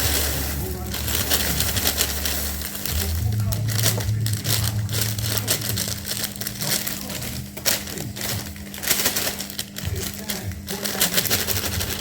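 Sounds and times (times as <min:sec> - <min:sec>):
dry cereal flakes pouring: 0:00.0 - 0:12.0
packaging rustling: 0:00.0 - 0:12.0.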